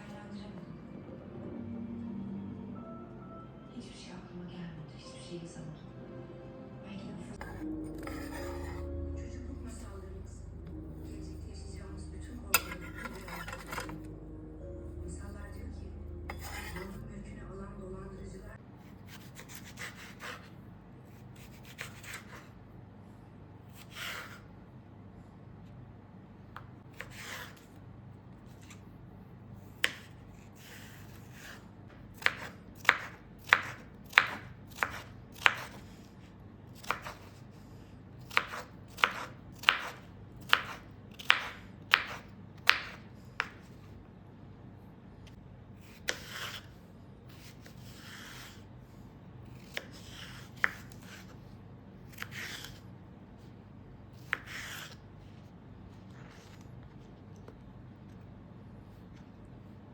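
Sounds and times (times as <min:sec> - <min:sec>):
soft rubbing or scraping: 0:07.4 - 0:08.8.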